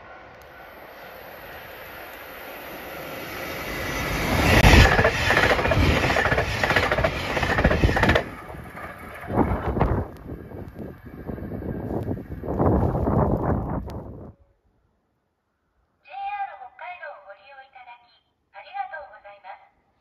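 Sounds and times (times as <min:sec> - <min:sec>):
train rumbling past: 0:00.0 - 0:14.3
wheels clattering over rails: 0:03.6 - 0:12.8.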